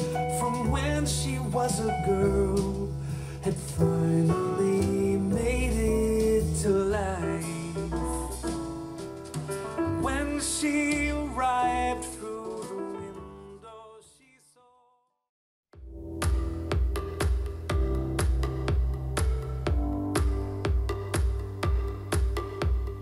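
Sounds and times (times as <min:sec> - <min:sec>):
song with singing and guitar: 0:00.0 - 0:08.6, 0:10.0 - 0:14.3.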